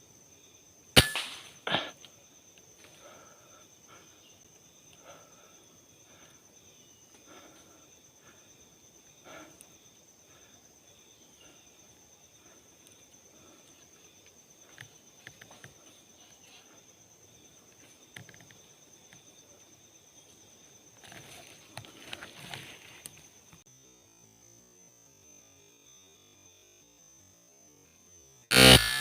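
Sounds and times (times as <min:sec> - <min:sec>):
high-pitched insect trill: 0:00.0 - 0:29.0
light clicks and rustles: 0:21.0 - 0:23.6.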